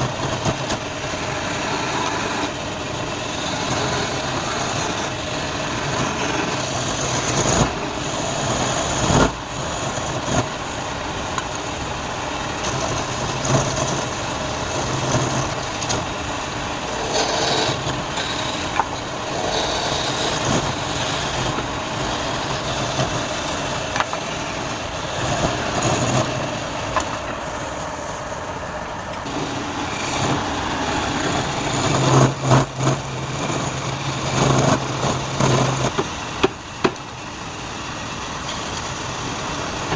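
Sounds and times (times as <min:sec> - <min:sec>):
low motor hum: 0:00.0 - 0:37.2
lathe tool cutting wood: 0:00.0 - 0:39.9.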